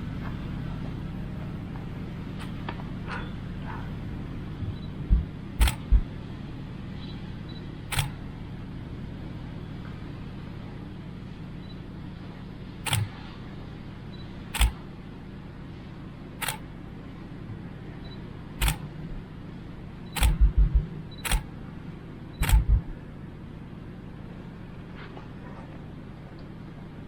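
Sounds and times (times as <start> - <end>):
low background hum: 0.0 - 27.0
dull low thumps: 4.6 - 6.2, 20.2 - 21.0, 22.4 - 23.0
sharp clicks: 4.7 - 6.0, 7.9 - 8.2, 12.8 - 13.3, 14.5 - 14.8, 16.4 - 16.7, 18.6 - 18.9, 20.1 - 21.5, 22.4 - 22.9.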